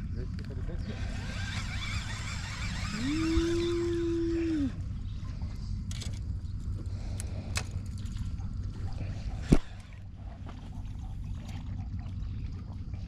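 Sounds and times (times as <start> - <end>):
low steady rumble: 0.0 - 13.0
water sloshing around boat: 4.7 - 13.0.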